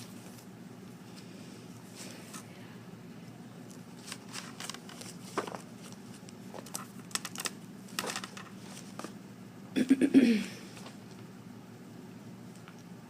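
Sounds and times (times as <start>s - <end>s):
paper rustling and shuffling: 0.0s - 2.5s, 3.7s - 9.2s
low steady hum: 0.0s - 13.0s.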